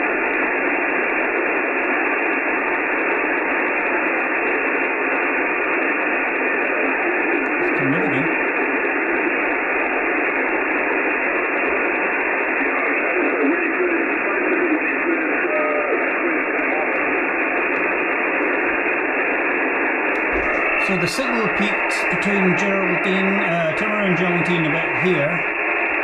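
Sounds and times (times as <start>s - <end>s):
radio static hiss: 3.8s - 26.0s
faint radio warble: 6.4s - 10.3s, 11.0s - 19.0s, 20.2s - 26.0s.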